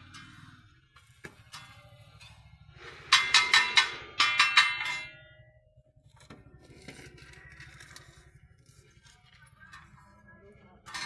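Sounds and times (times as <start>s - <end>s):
metal spatula clanging on wok: 3.1s - 5.4s.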